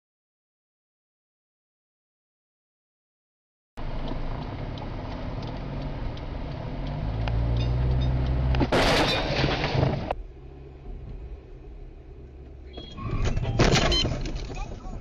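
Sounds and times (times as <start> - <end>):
car road and engine noise: 3.8 - 15.0
crash and crunching metal: 8.6 - 10.2.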